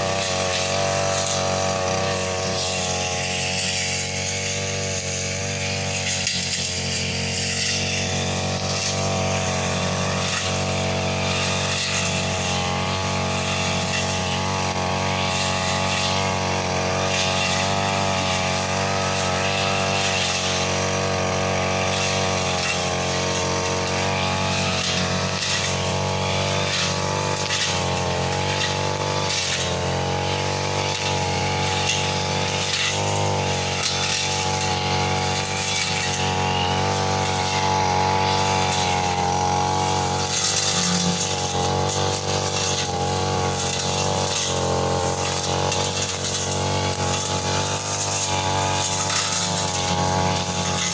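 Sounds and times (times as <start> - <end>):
brush cutter engine: 0.0 - 50.9
cutting head striking vegetation: 21.7 - 50.9.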